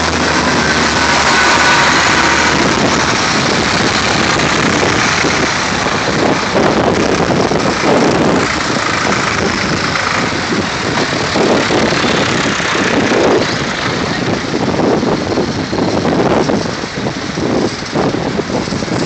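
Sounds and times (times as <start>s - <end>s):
tractor engines running: 0.0s - 19.0s.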